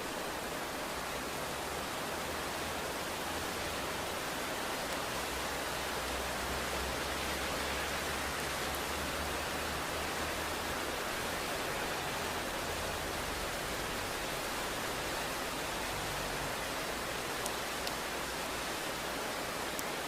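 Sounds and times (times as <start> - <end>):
rain falling: 0.0 - 20.0
faint ticks: 17.4 - 18.0, 19.7 - 20.0.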